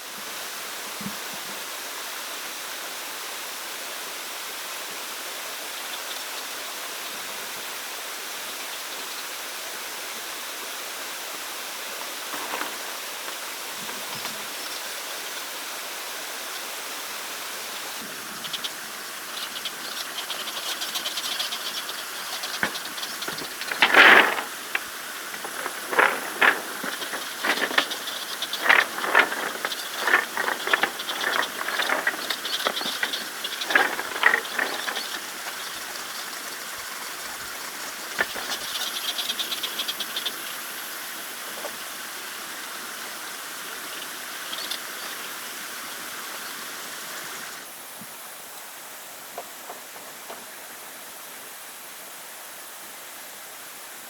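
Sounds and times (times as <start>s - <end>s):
steady rushing hiss: 0.0s - 54.0s
crackling rustles and knocks: 12.0s - 14.8s, 18.4s - 40.5s, 49.3s - 50.8s.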